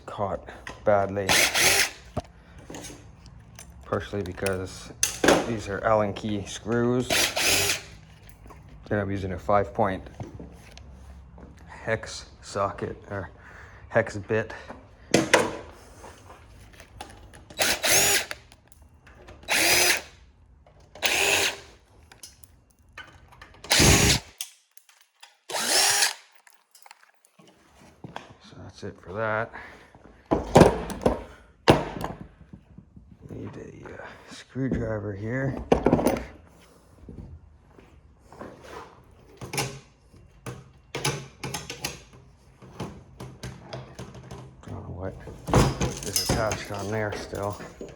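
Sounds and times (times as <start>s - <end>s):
power drill spinning: 1.0s - 2.3s, 5.6s - 8.2s, 17.4s - 18.6s, 19.4s - 20.2s, 21.0s - 21.8s, 23.6s - 24.4s, 25.5s - 26.3s.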